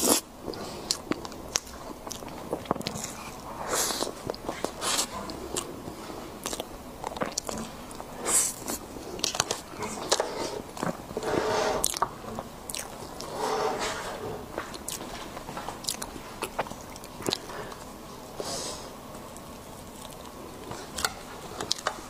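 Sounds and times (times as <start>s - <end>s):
chewing soft cake: 0.0s - 22.0s
wet mouth noises: 6.4s - 10.2s.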